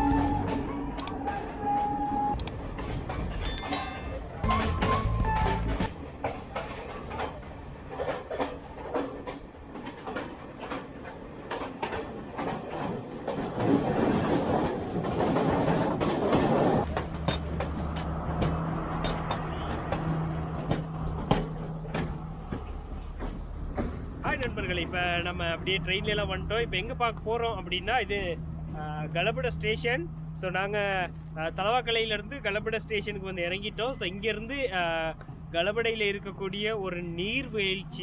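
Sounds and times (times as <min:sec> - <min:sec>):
train wheels clicking on rails: 0:04.4 - 0:24.8.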